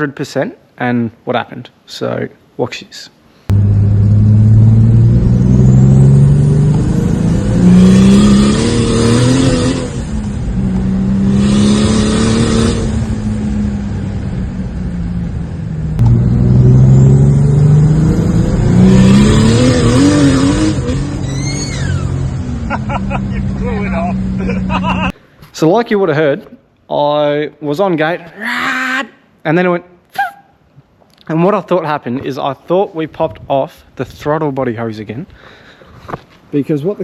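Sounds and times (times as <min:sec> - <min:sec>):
car engine accelerating hard: 0:03.5 - 0:25.1.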